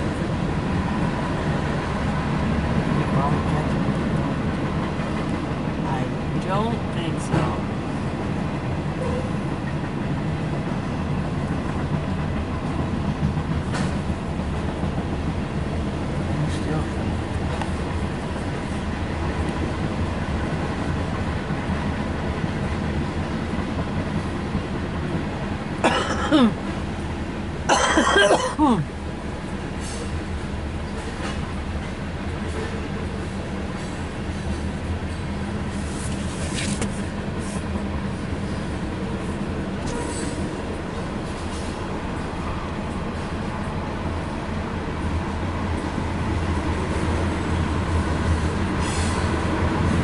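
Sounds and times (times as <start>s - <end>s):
freight train wheels on rail: 0.0s - 50.0s
high wheel squeals: 39.8s - 40.6s.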